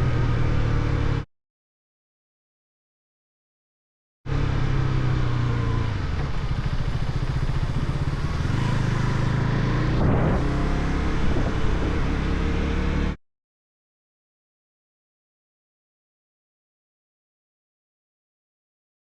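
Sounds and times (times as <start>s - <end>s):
motorcycle engine running: 4.3s - 13.2s.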